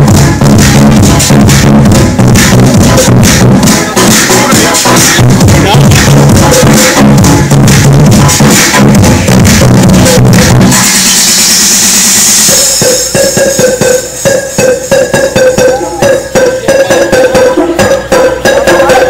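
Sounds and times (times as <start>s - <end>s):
loud electronic dance music: 0.0s - 19.0s.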